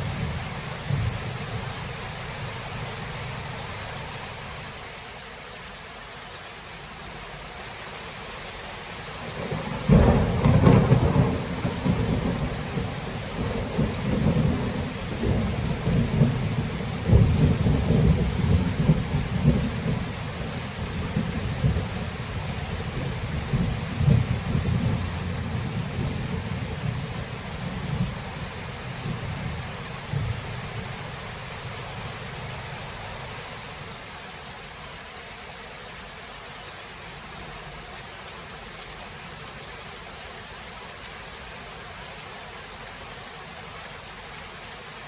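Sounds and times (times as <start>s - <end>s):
rolling thunder rumble: 0.0s - 1.8s, 9.3s - 32.7s
steady rain: 0.0s - 45.0s
thunder clap: 9.4s - 20.1s, 23.0s - 27.2s.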